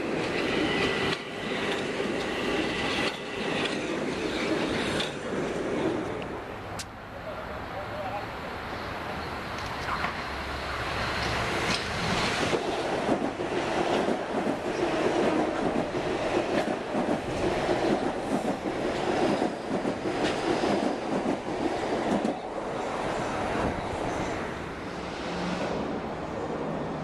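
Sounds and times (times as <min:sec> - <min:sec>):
wheels clacking over rail joints: 0:00.0 - 0:06.9.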